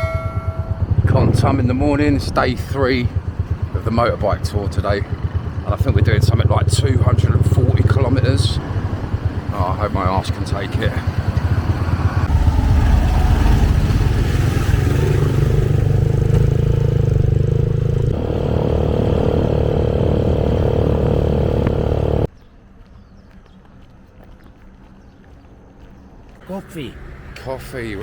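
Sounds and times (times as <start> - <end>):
motorbike engine running: 0.0 - 22.3.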